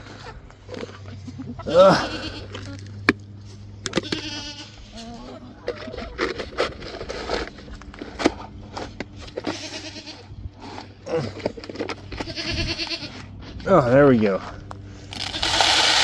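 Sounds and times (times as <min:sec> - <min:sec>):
goats bleating: 0:00.0 - 0:02.8, 0:03.8 - 0:05.9, 0:09.3 - 0:14.0.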